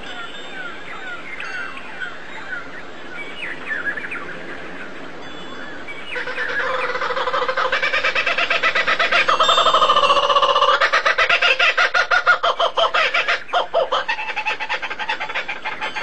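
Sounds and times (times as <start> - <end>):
birds chirping: 0.0 - 16.0
bird call of fast pulses: 6.1 - 16.0.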